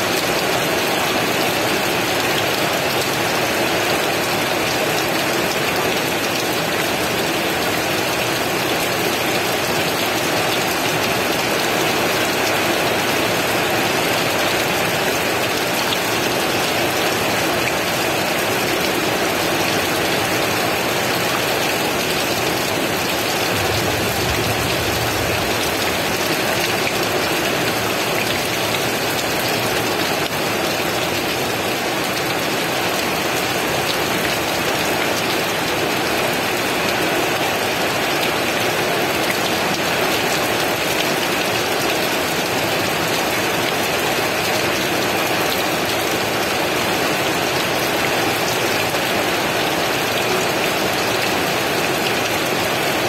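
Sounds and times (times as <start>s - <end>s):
heavy rain: 0.0s - 53.0s
low rumble: 23.4s - 27.1s.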